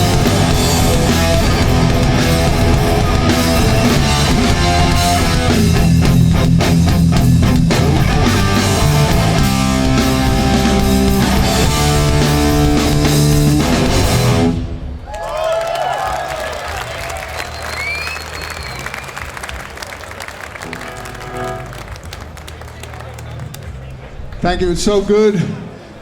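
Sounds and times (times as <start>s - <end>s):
punk band playing live: 0.0s - 14.8s, 20.2s - 23.8s.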